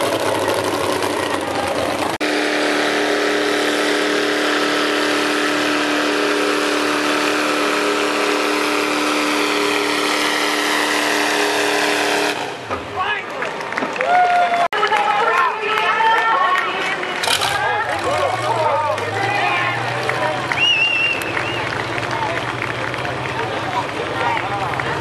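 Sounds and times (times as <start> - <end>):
truck engine running at high revs: 0.0 - 12.8.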